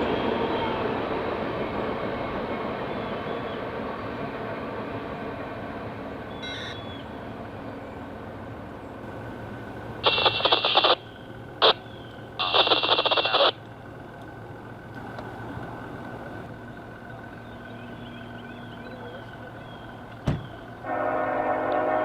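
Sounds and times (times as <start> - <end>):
train rumbling past: 0.0 - 22.0
scanner radio buzzy bursts: 10.0 - 11.8, 12.4 - 13.6.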